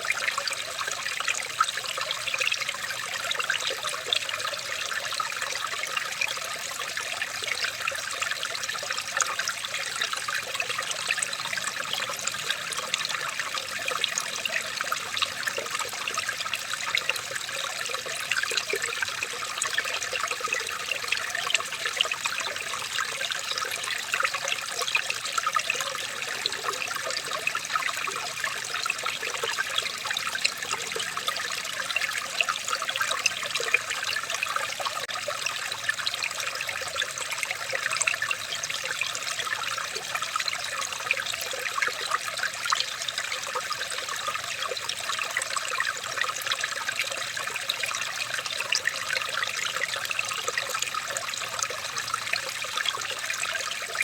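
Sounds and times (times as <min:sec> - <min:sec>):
water trickling: 0:00.0 - 0:54.0.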